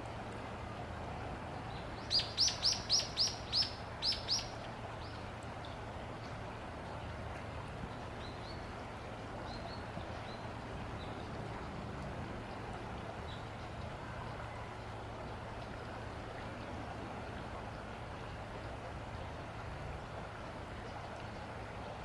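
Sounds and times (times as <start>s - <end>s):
bird chirping: 2.0s - 4.5s.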